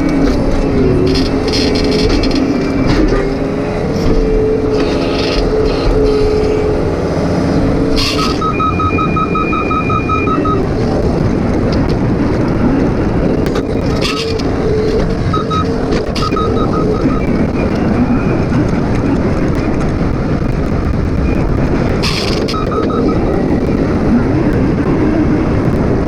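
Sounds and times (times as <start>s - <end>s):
excavator engine drone: 0.0s - 26.0s
rapid beeping alarm: 8.0s - 10.8s, 13.7s - 18.6s, 21.3s - 23.6s.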